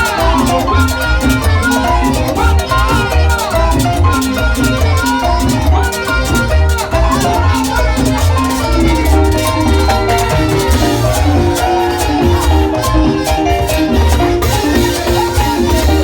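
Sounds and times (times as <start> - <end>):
latin dance band music: 0.0 - 16.0.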